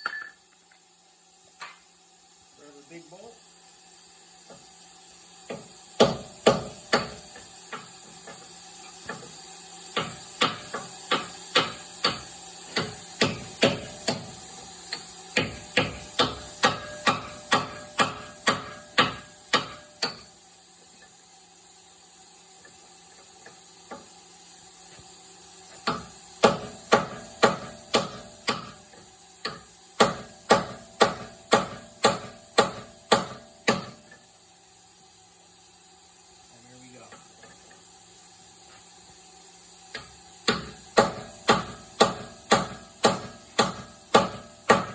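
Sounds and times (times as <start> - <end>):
hammer striking metal bolt: 15.4 - 20.2, 29.5 - 34.2, 40.5 - 44.9.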